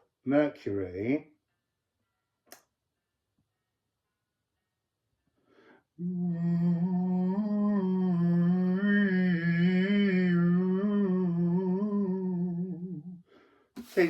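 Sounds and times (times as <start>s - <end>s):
intake of breath: 5.4s - 5.9s, 13.3s - 14.0s
person humming long note: 6.0s - 13.2s.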